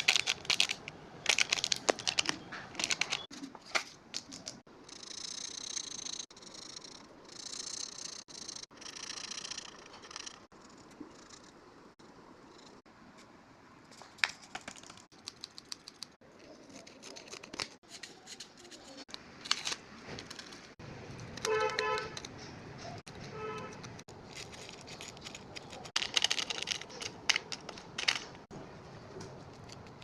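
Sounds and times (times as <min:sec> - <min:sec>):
plastic bag crinkling: 0:00.0 - 0:03.3.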